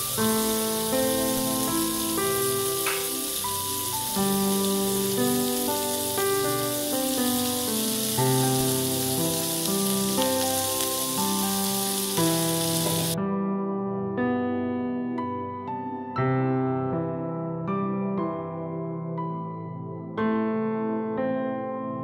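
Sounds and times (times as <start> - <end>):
vegetables sizzling in oil: 0.0 - 13.2
slow piano music: 0.0 - 22.0.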